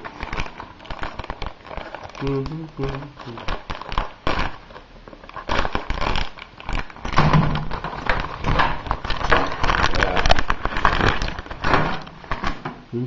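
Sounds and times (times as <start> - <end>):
plastic packaging crinkling: 0.0 - 12.8.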